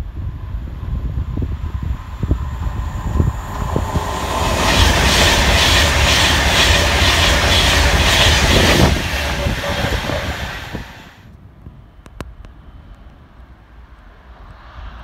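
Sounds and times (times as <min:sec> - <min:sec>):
electric train passing at speed: 0:00.0 - 0:11.3.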